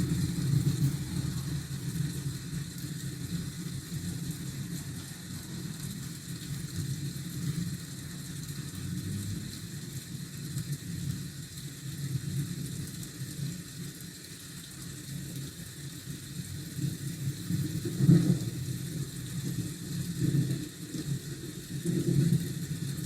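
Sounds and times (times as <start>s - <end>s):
traffic rumble: 0.0s - 10.2s
faint rain hiss: 0.0s - 23.0s.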